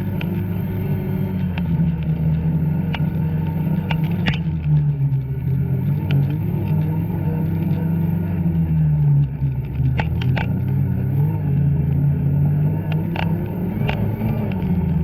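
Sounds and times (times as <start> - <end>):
snowmobile engine revving: 0.0 - 8.6, 9.5 - 15.0.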